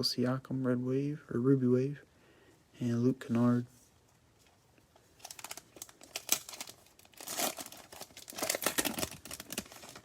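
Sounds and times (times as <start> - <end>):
foil wrapper crinkling and tearing: 5.2 - 10.0.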